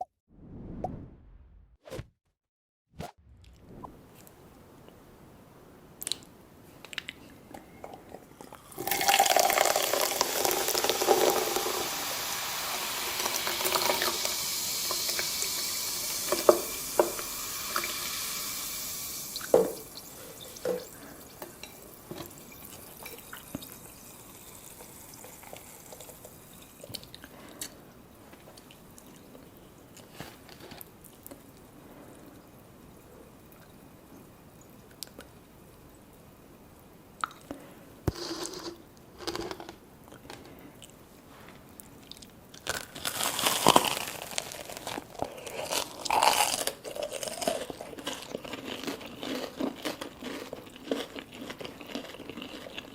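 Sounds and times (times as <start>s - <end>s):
liquid pouring: 8.6s - 11.8s.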